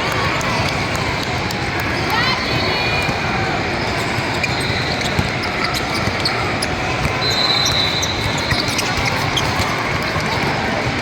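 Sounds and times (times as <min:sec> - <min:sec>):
gym background noise: 0:00.0 - 0:11.0
sneaker squeaks: 0:01.8 - 0:10.5
basketball dribbling: 0:05.0 - 0:10.7.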